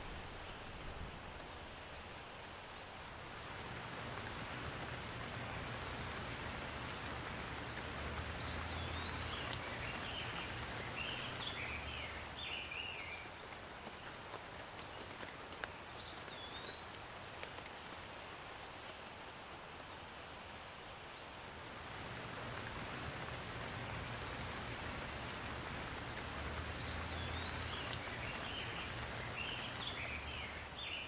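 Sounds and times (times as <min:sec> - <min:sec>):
steady rain falling: 0:00.0 - 0:31.0
birds chirping: 0:03.6 - 0:13.2, 0:21.8 - 0:31.0.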